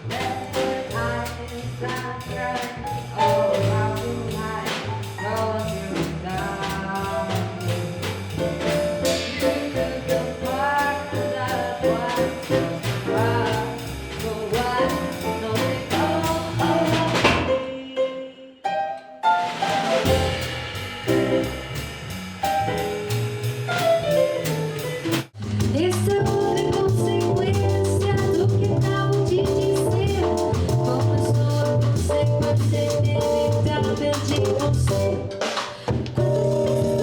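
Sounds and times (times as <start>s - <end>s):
instrumental jazz band: 0.0s - 18.0s, 19.2s - 37.0s.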